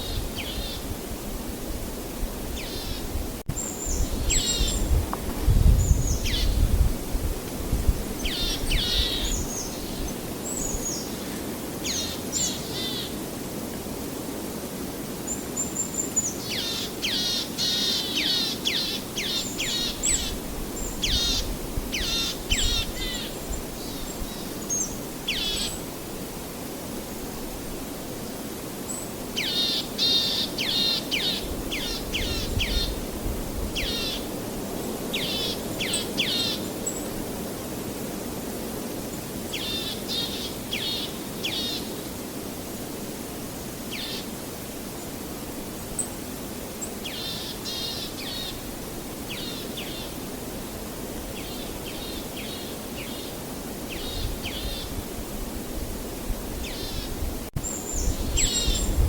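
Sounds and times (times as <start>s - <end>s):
small birds chirping: 2.6s - 5.0s, 51.3s - 53.3s.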